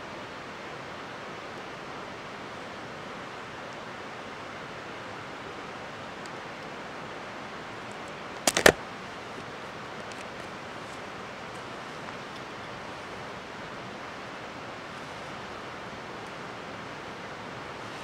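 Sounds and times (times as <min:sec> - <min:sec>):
steady rushing outdoor noise: 0:00.0 - 0:18.0
sharp clicks: 0:08.4 - 0:08.8.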